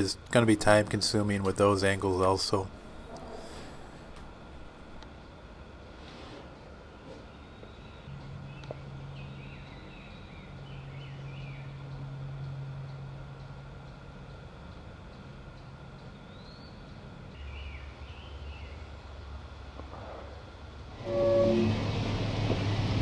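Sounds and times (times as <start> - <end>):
steady low hum: 0.0 - 23.0
small birds chirping: 6.5 - 19.6.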